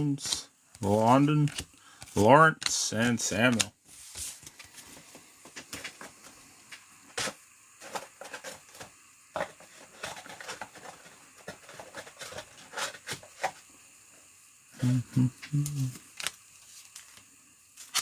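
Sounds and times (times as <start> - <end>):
trading cards clicking: 1.3 - 1.8.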